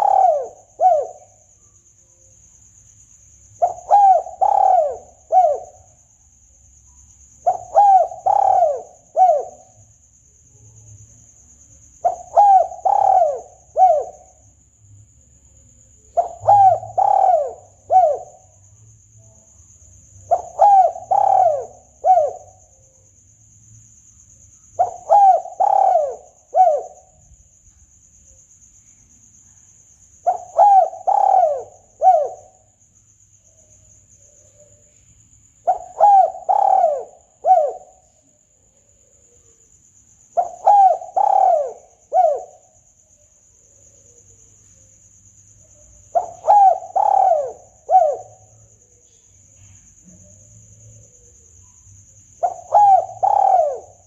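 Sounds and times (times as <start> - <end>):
dove cooing: 0.0 - 1.4, 3.6 - 5.9, 7.4 - 9.8, 12.0 - 14.4, 16.2 - 18.5, 20.2 - 22.7, 24.8 - 27.1, 30.2 - 32.6, 35.6 - 38.3, 40.4 - 42.8, 46.1 - 51.4, 52.4 - 54.0.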